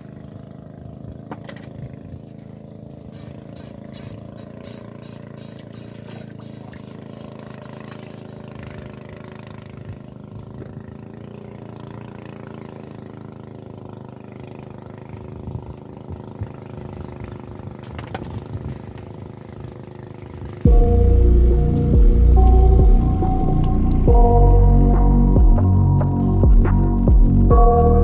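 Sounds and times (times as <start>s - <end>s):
engine running steadily: 18.9s - 28.0s.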